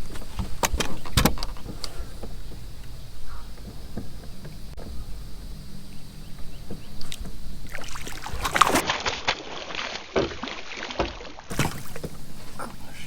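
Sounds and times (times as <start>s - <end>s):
water splashing and knocking: 0.0s - 12.9s
low steady hum: 0.0s - 13.0s.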